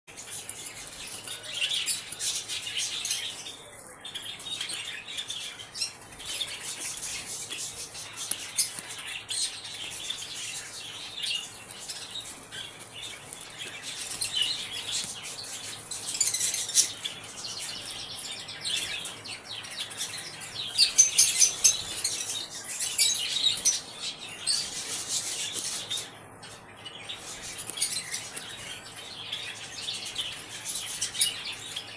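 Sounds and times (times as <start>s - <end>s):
parrots chirping and chattering: 0.1s - 31.9s.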